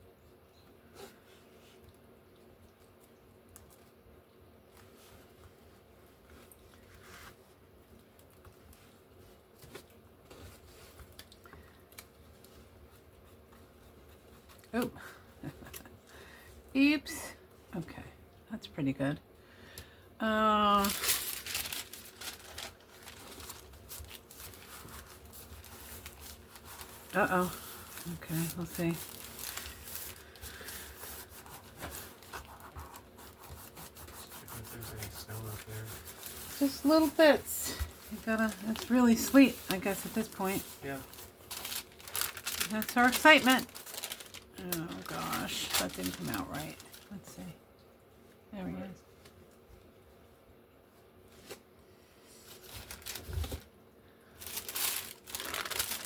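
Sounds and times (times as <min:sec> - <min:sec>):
paper rustle: 0:20.7 - 0:47.2, 0:52.2 - 0:53.7, 0:54.3 - 0:56.0.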